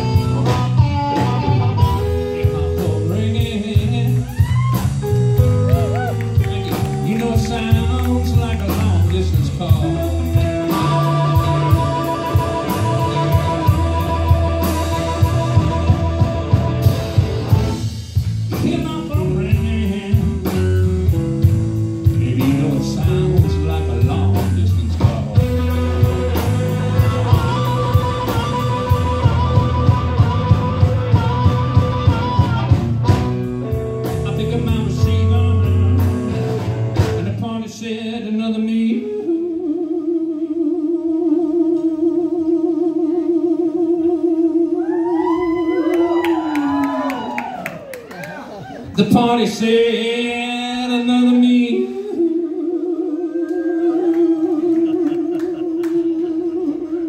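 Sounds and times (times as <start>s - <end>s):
steady drum beat: 0.0s - 37.5s
bass guitar: 0.0s - 57.0s
blues guitar lines: 0.0s - 57.0s.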